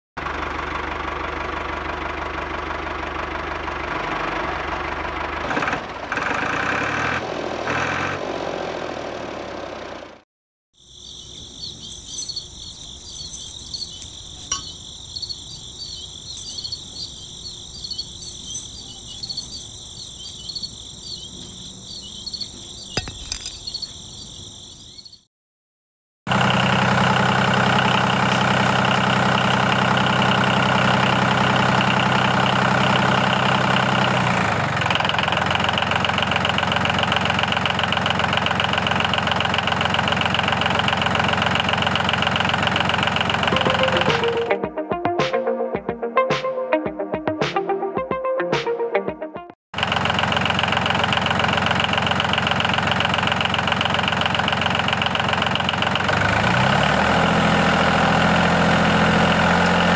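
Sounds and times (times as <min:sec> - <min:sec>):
tractor engine running: 0:00.2 - 0:06.6, 0:11.8 - 0:15.3, 0:15.9 - 0:23.8, 0:26.3 - 0:44.5, 0:49.8 - 0:59.9
insects trilling: 0:10.8 - 0:25.2.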